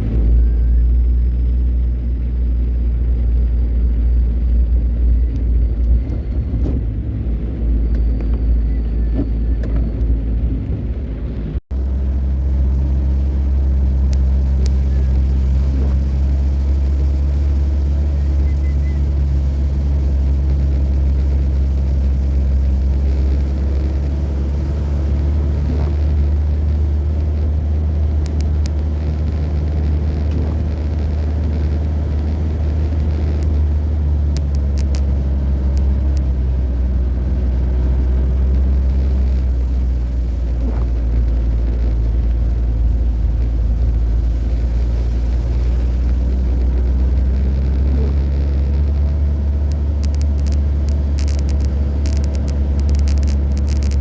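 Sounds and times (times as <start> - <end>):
vehicle engine and road drone: 0.0 - 54.0
faint clicks: 28.2 - 33.6, 46.0 - 54.0.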